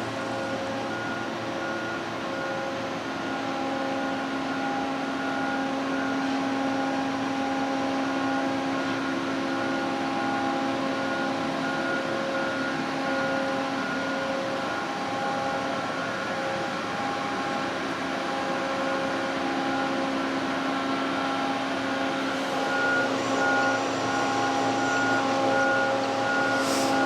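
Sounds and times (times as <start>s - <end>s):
steady machine hum: 12.1s - 27.0s.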